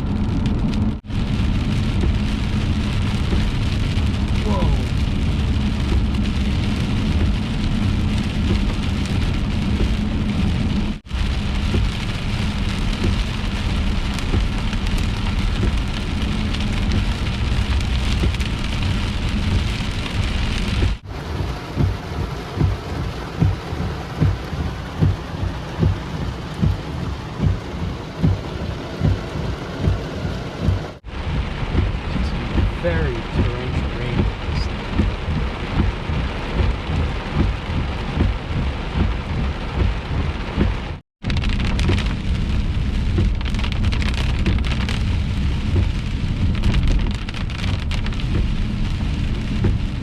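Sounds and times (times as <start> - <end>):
heavy rain pounding on car: 0.0 - 50.0
low rumbling: 0.0 - 50.0
regular low thump: 1.8 - 2.5, 3.2 - 3.8, 5.8 - 6.3, 7.0 - 7.5, 8.3 - 8.9, 9.6 - 10.2, 11.1 - 12.1, 12.9 - 13.4, 14.1 - 14.8, 18.1 - 18.6, 19.4 - 41.0, 43.1 - 43.5, 45.6 - 47.0.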